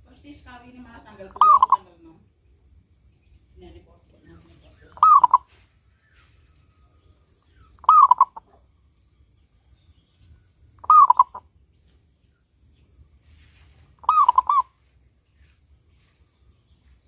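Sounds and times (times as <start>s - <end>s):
dove cooing: 1.3s - 1.9s, 4.9s - 5.5s, 7.8s - 8.6s, 10.8s - 11.5s, 14.0s - 14.7s.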